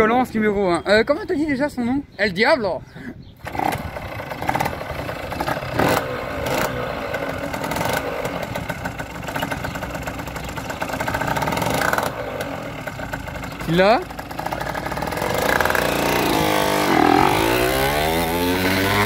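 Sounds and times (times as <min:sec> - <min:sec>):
two-stroke engine throttle blips: 0:03.4 - 0:19.0.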